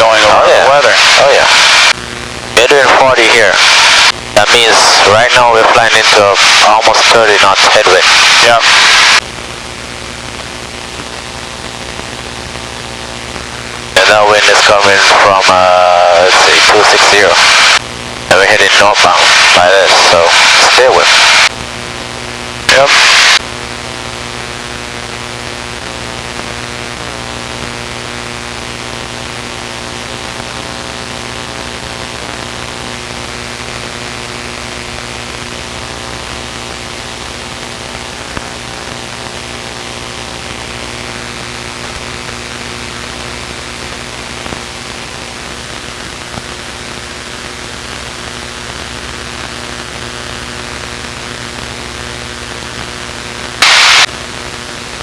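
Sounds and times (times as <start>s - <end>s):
loud burst of noise: 0.0s - 9.3s, 14.0s - 21.6s, 22.7s - 23.4s, 53.6s - 54.4s.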